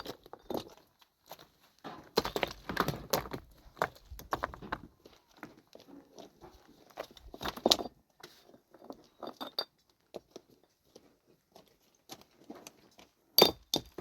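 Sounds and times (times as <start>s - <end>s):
small hard objects knocking: 1.9s - 4.9s, 13.4s - 14.0s.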